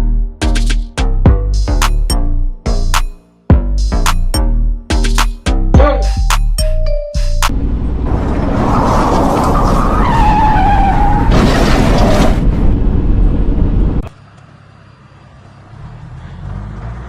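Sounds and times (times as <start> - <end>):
loud road rumble: 6.2 - 17.0
car tyres squealing: 8.1 - 12.5.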